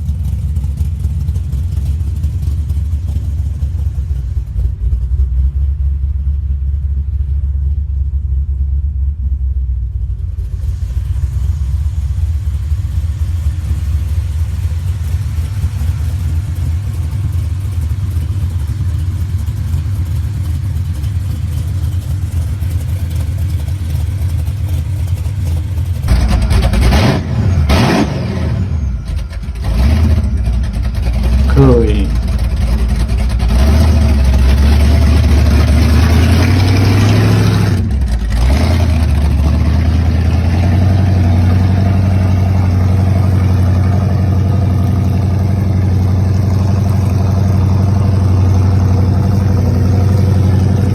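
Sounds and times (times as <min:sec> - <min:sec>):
car engine rumbling and revving: 0:00.0 - 0:50.9.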